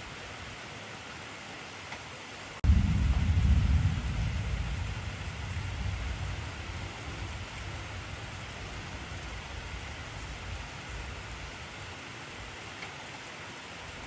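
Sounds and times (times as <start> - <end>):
heavy rain hiss: 0.0 - 14.0
deep low rumble: 2.6 - 11.4.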